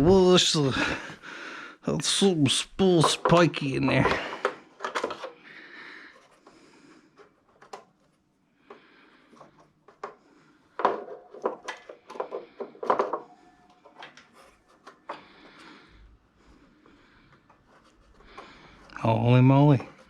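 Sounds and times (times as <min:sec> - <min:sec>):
tools clicking and knocking: 0:02.9 - 0:05.4, 0:09.4 - 0:15.2.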